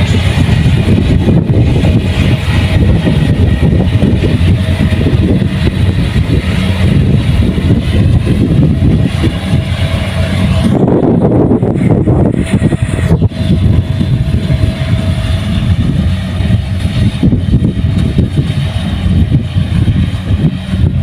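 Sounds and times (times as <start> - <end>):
threshing machinery clatter and hiss: 0.0 - 10.8
combine harvester engine rumble: 0.0 - 21.0.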